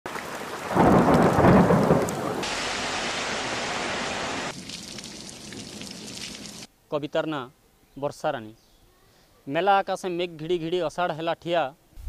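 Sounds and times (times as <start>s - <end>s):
heavy rain pouring: 0.1s - 6.7s
thunder rumble: 0.5s - 4.8s.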